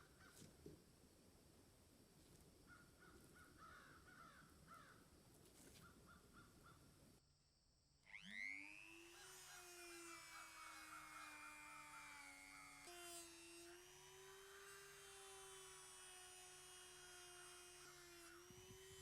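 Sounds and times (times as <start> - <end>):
small electric motor spinning: 8.0 - 19.0.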